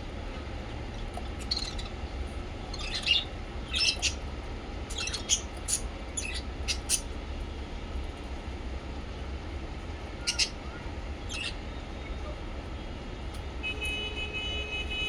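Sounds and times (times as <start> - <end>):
steady low hum: 0.0 - 14.0
parrots chirping: 0.9 - 7.2, 10.2 - 11.6.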